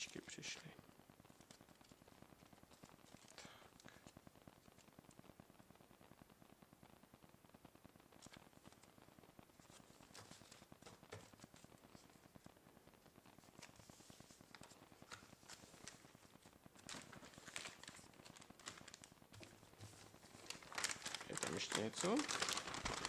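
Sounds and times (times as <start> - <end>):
packaging clicks and rustles: 14.5 - 23.0.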